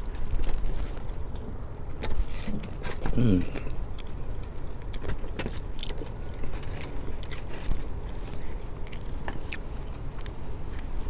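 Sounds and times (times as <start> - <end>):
chewing food: 0.0 - 11.0.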